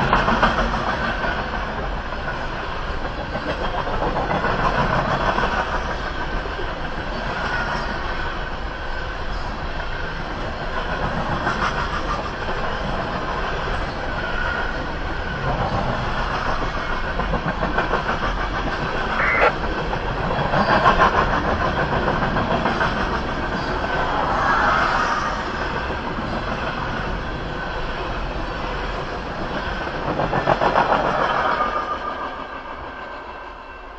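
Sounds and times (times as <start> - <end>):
brief sharp sound: 19.2 - 19.5.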